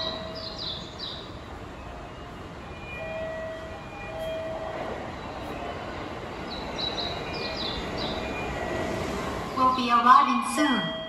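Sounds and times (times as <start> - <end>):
bird chirps: 0.0 - 1.4, 6.5 - 8.5
train running on tracks: 0.0 - 11.0.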